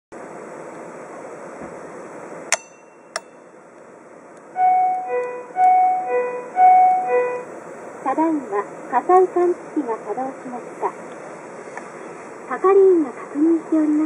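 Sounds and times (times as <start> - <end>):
two-note chime: 4.6 - 7.5.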